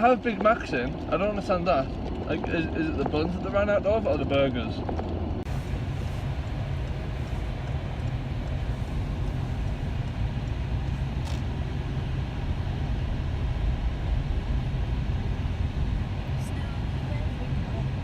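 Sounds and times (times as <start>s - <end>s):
car driving rumble from inside: 0.0s - 18.0s.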